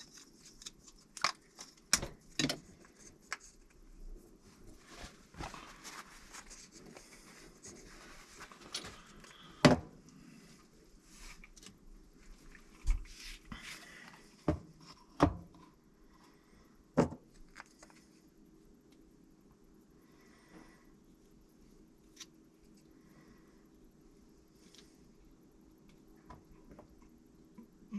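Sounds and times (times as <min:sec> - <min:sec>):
rustling: 0:02.8 - 0:09.4.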